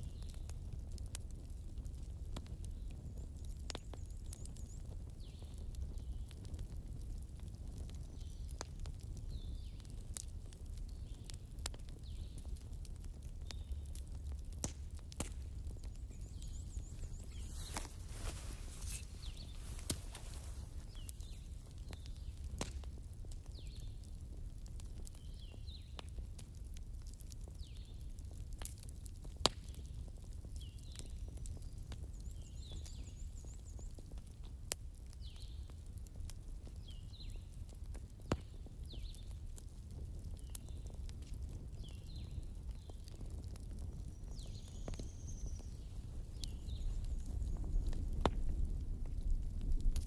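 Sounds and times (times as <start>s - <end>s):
campfire crackling and popping: 0.0s - 50.0s
bird chirping: 15.7s - 21.5s.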